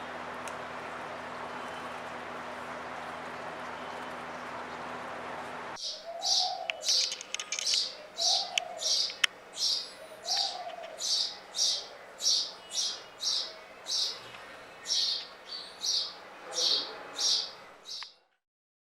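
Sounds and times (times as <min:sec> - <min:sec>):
short lower bird calls: 0:05.8 - 0:18.1
small bird chirping: 0:05.8 - 0:18.1
faint clicks: 0:06.7 - 0:07.9, 0:08.5 - 0:09.4.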